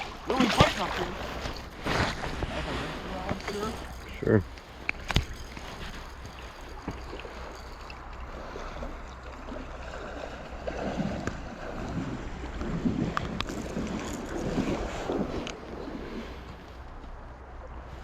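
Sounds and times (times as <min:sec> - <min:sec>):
river water running: 0:00.0 - 0:18.0
wind on microphone: 0:10.8 - 0:17.0.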